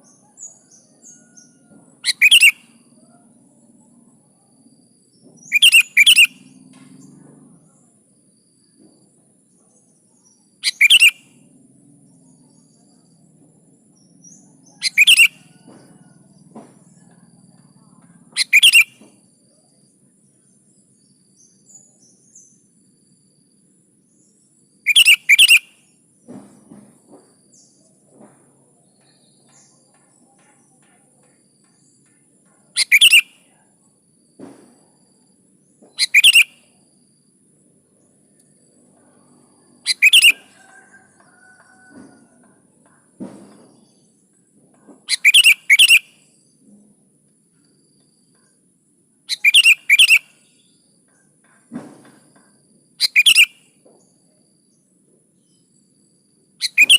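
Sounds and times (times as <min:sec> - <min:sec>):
bulbul chirping calls: 0:00.4 - 0:02.9, 0:05.4 - 0:06.5, 0:10.6 - 0:11.3, 0:14.3 - 0:15.6, 0:18.4 - 0:19.1, 0:24.8 - 0:25.8, 0:32.8 - 0:33.6, 0:35.9 - 0:36.8, 0:39.8 - 0:40.6, 0:45.1 - 0:46.3, 0:49.3 - 0:50.6, 0:53.0 - 0:53.7, 0:56.6 - 0:56.9.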